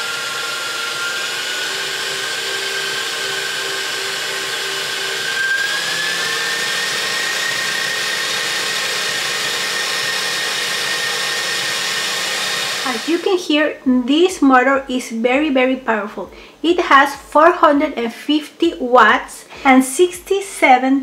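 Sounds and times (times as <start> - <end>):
stand mixer motor whining: 0.0 - 13.3.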